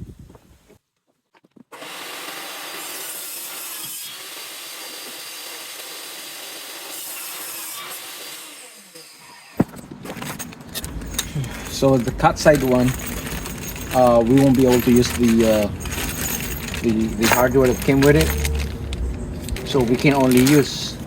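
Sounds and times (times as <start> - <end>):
power saw cutting panel: 1.8 - 9.6.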